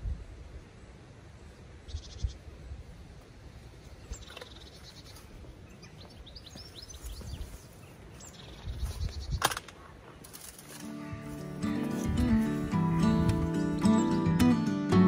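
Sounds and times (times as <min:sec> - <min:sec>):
low rumble of wind: 0:00.0 - 0:14.0
small birds chirping: 0:03.5 - 0:14.6.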